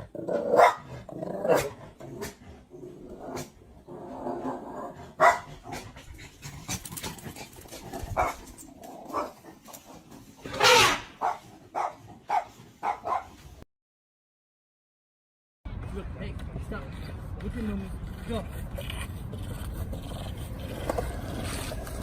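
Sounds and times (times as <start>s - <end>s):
dog barking and yipping: 0.5s - 0.9s, 5.2s - 5.8s, 8.1s - 13.5s.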